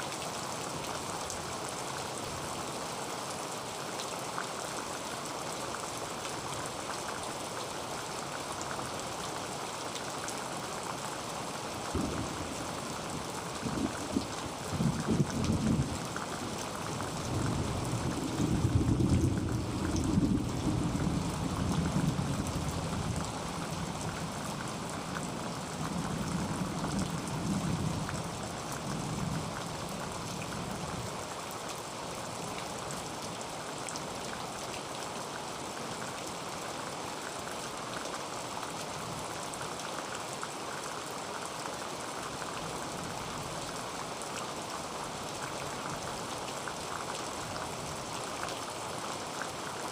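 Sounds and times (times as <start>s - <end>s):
heavy rain on a tin roof: 0.0s - 49.9s
thunder rumbling: 12.0s - 12.7s.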